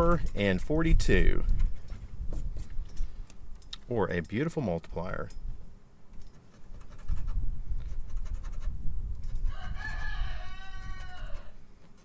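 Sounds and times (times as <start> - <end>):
wind rumble on microphone: 0.0 - 3.6, 4.9 - 11.8
rooster crowing: 9.4 - 11.6.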